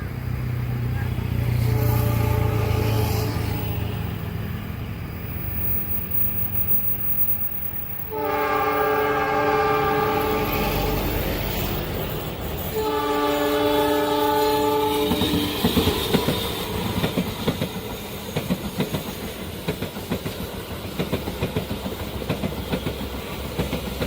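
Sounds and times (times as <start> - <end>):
locomotive horn blast: 1.0 - 4.2, 8.0 - 11.2, 12.7 - 15.9.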